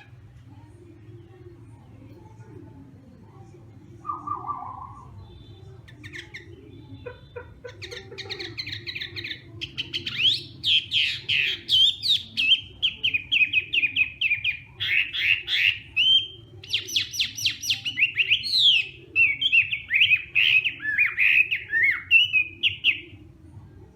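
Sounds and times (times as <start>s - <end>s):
bird singing whistled notes: 4.0s - 5.5s.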